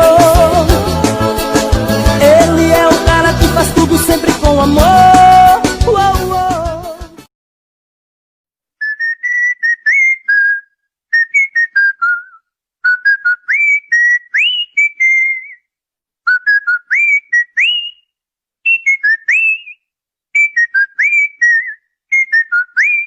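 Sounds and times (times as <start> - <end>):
whistled song: 8.8 - 23.0.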